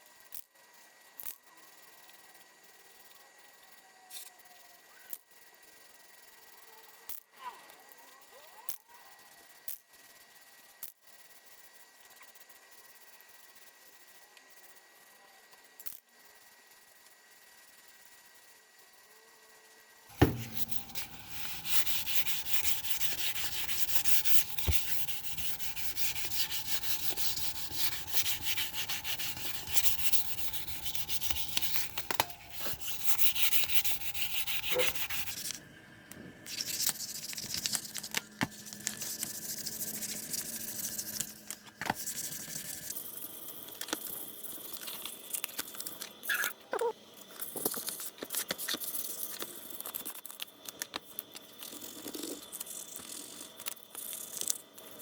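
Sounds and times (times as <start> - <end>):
rubbing strokes on hard surface: 20.1 - 35.6, 42.0 - 43.0.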